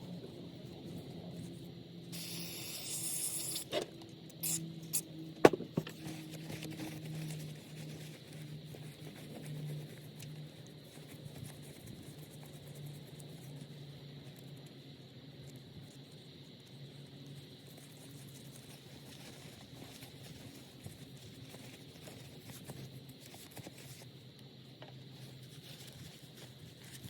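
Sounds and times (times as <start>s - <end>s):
spray hiss: 2.2s - 3.7s, 4.4s - 5.0s.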